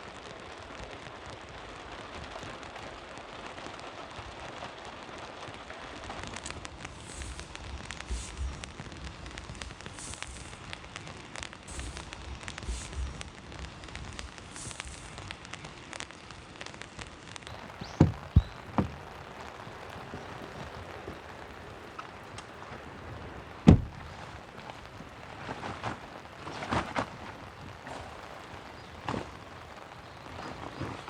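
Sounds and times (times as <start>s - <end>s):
steady rain: 0.0s - 31.0s
drops pattering on a surface: 6.1s - 22.8s
sharp thumps: 11.7s - 13.4s, 17.6s - 19.2s, 23.7s - 24.1s.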